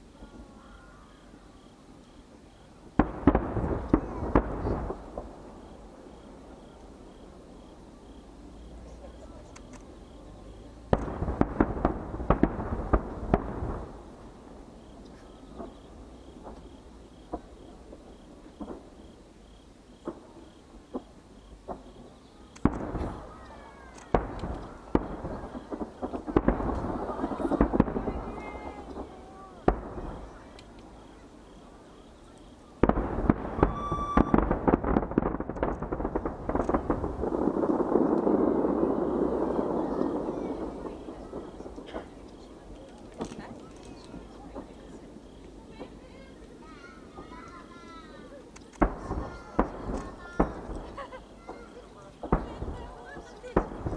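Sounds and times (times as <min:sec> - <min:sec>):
firework shells bursting: 0:08.7 - 0:19.0, 0:20.0 - 0:31.2, 0:32.4 - 0:53.9
short steady tone: 0:33.6 - 0:34.5.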